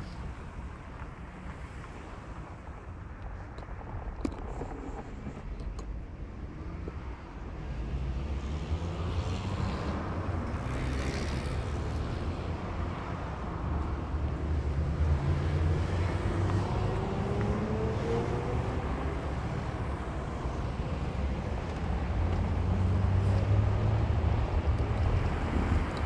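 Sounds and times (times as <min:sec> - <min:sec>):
street traffic: 0:00.0 - 0:26.0
vehicle passing: 0:14.6 - 0:26.0
engine speeding up: 0:14.7 - 0:20.7.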